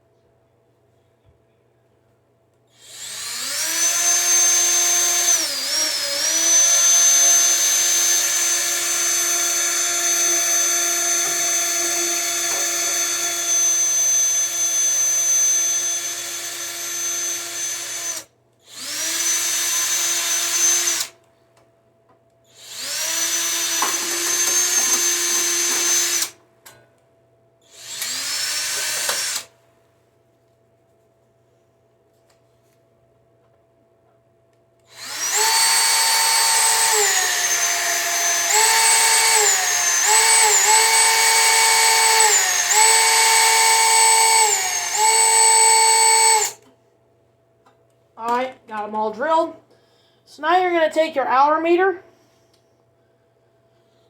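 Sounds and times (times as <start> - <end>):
electric drill drilling: 2.8 - 21.1, 22.6 - 26.4, 27.7 - 29.5, 34.9 - 46.6.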